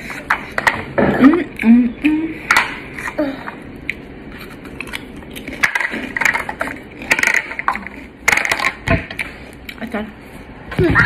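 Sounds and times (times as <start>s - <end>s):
close chewing of food: 2.9s - 7.3s.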